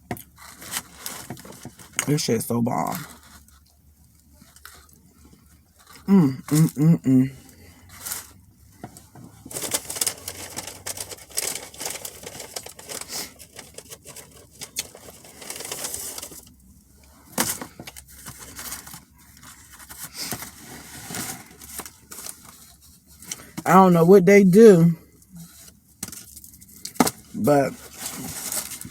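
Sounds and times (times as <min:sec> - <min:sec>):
wrapper crinkles: 0:09.0 - 0:16.6, 0:17.3 - 0:23.6, 0:25.4 - 0:28.9.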